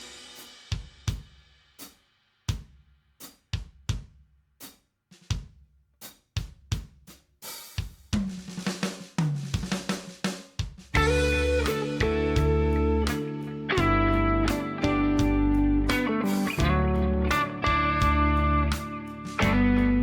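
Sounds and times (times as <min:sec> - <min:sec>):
drum kit hits: 0:10.9 - 0:20.0
low sustained band notes: 0:11.0 - 0:20.0.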